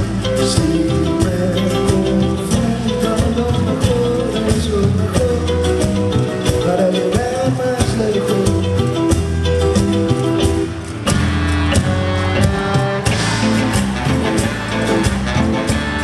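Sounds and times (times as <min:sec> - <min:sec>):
live band music: 0:00.0 - 0:16.0.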